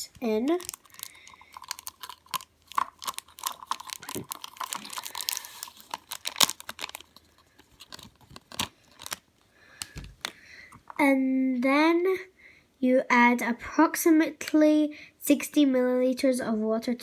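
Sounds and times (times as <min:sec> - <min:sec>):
plastic packet crinkling: 0:00.0 - 0:10.4.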